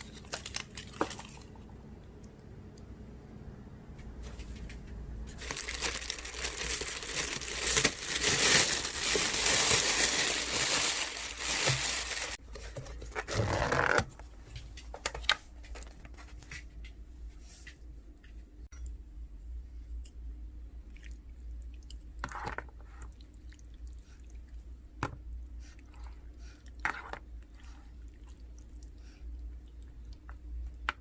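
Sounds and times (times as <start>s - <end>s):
plastic packaging crinkling: 0.0s - 1.6s, 5.3s - 12.4s.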